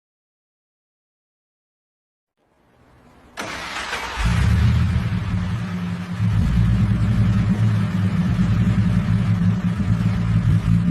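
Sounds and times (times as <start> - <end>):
car engine running: 3.4 - 10.9.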